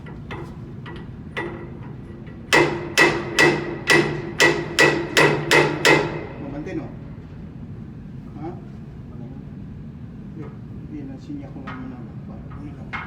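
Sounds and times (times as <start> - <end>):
hammer striking metal: 2.5 - 6.5.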